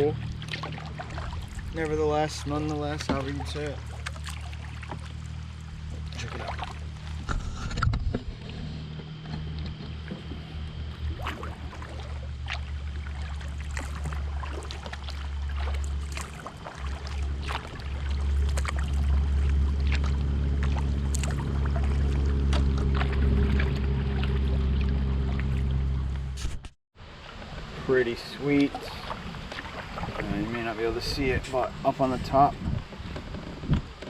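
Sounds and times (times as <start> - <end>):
dripping water: 0.0 - 7.2, 10.8 - 25.9
paddle clicks and splashes: 0.0 - 26.4, 27.2 - 34.0
steady low hum: 0.0 - 26.7.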